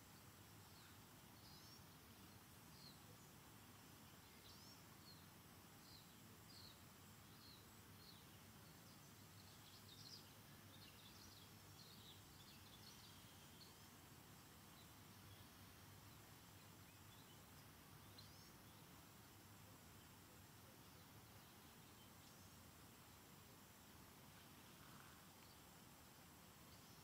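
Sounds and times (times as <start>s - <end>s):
faint bird chirps: 0.0s - 27.0s
soft steady hiss: 0.0s - 27.0s.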